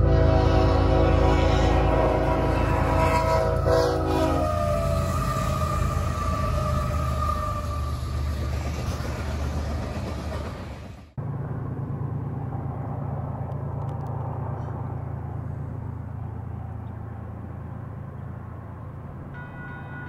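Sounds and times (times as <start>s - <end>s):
train wheels rushing on rail: 0.0s - 11.2s
train low rumble: 0.0s - 20.0s.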